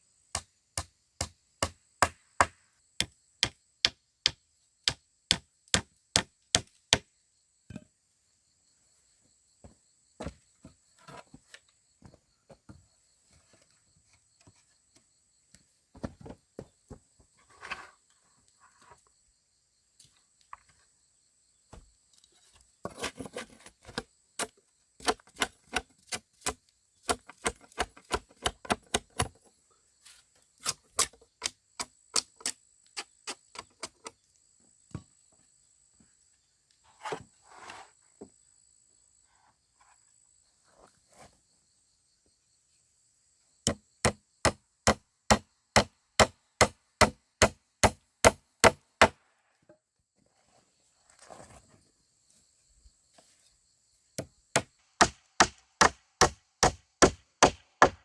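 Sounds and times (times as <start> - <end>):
blade chopping wood: 25.0 - 29.3, 54.2 - 58.0
brief scrape: 36.9 - 38.0.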